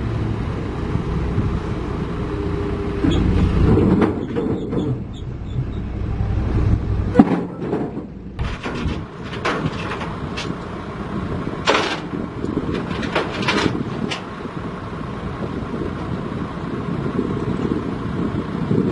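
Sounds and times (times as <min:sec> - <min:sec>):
diesel machinery rumbling: 0:00.0 - 0:18.9
metal clanks and knocks: 0:03.0 - 0:06.0, 0:07.1 - 0:10.9, 0:11.6 - 0:14.4.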